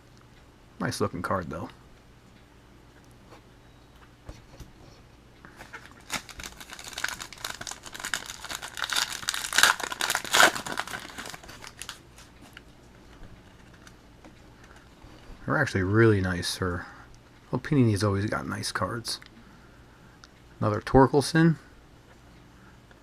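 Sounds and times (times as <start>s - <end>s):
plastic wrapper crinkling and tearing: 5.6s - 12.6s, 13.4s - 14.0s.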